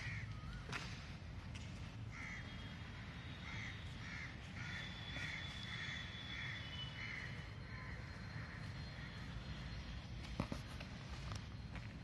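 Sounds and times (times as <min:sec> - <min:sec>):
bird calling: 0:00.0 - 0:01.2, 0:02.1 - 0:10.7.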